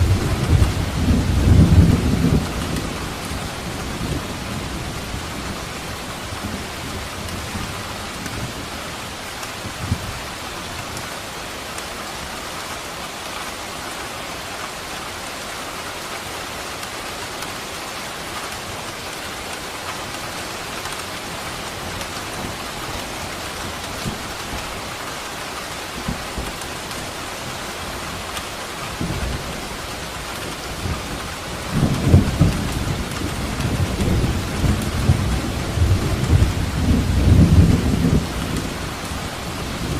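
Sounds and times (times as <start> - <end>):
rolling thunder rumble: 0.0 - 8.6, 30.4 - 39.9
steady rain falling: 0.0 - 39.9.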